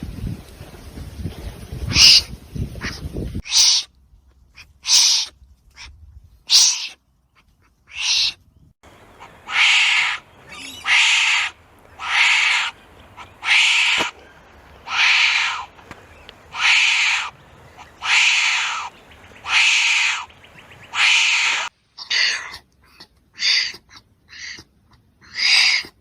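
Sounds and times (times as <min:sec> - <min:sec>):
wombat hoarse calls: 0:09.2 - 0:14.2, 0:14.8 - 0:15.7, 0:16.5 - 0:26.0.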